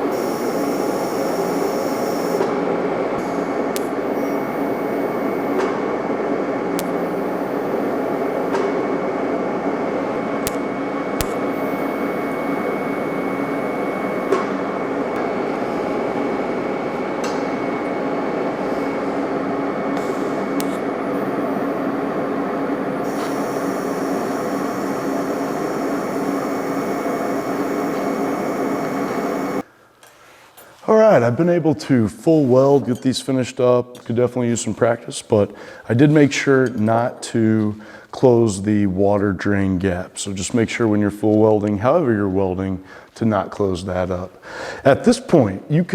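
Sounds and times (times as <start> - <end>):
welding arc buzzing hiss: 0.0 - 29.7
short clicks: 6.8 - 7.1, 20.0 - 20.9.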